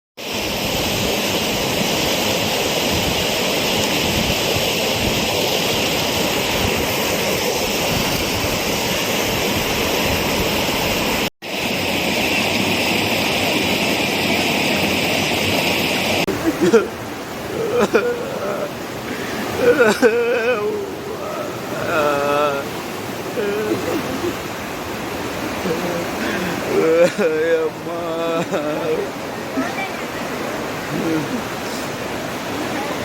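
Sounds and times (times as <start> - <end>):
rushing floodwater: 0.2 - 33.0.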